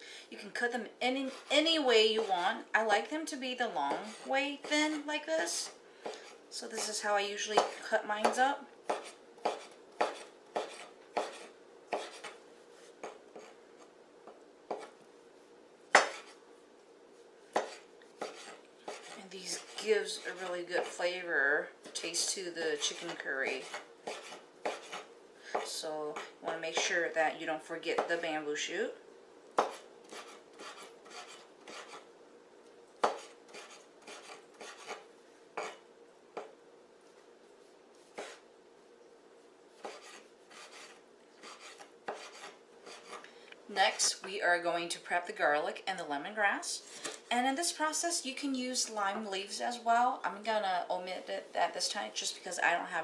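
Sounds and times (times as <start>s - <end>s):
knife chopping on cutting board: 6.0s - 12.4s, 15.9s - 16.4s, 17.5s - 20.9s, 22.8s - 26.9s, 29.6s - 32.0s, 33.0s - 35.0s, 38.1s - 38.4s, 39.8s - 43.2s.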